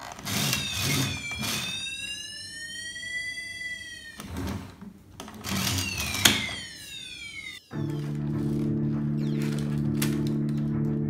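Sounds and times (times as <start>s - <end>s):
toy siren rising and falling: 0.4s - 4.3s, 5.6s - 8.6s.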